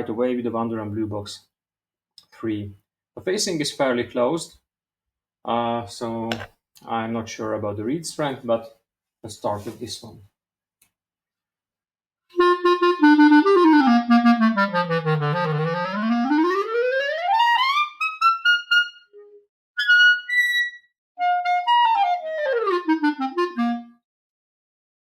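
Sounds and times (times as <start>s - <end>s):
clarinet playing runs: 12.4s - 24.0s.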